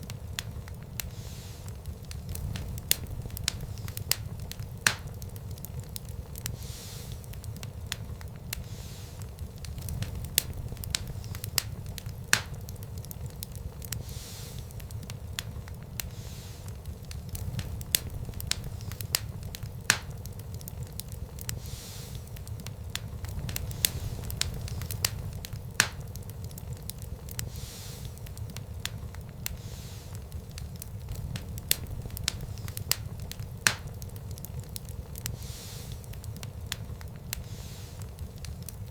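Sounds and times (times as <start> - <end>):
fireplace fire crackling: 0.0 - 38.9
low rumble of flames: 0.0 - 38.9.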